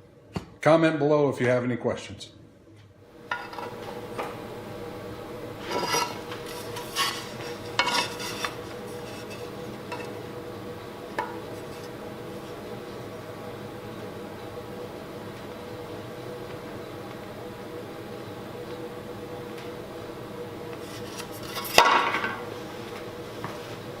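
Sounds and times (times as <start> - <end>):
background hum: 0.0 - 24.0.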